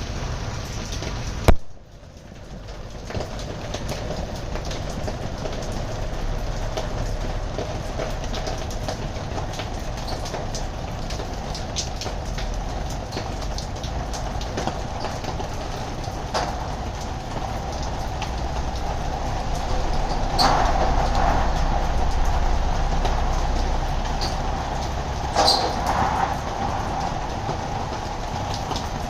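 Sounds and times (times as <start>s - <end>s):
roller shutter slats rattling: 13.1s - 29.0s.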